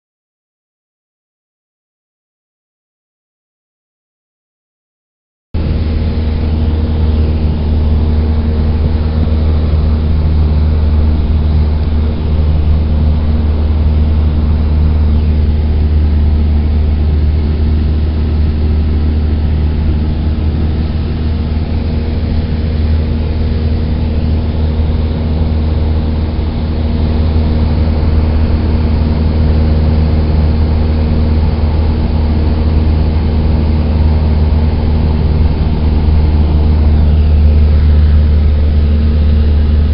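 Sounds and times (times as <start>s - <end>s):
propeller plane engine droning: 5.6s - 39.9s.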